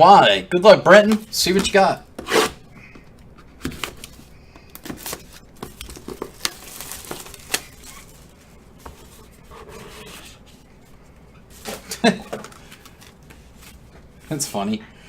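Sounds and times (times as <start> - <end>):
wrapping tearing and crinkling: 3.7 - 9.2.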